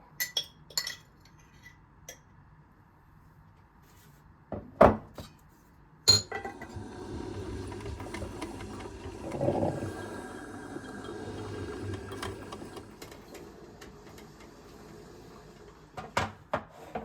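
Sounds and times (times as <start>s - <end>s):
kitchenware knocks and thud: 4.5s - 5.3s
kitchen appliance motor humming: 6.4s - 16.3s.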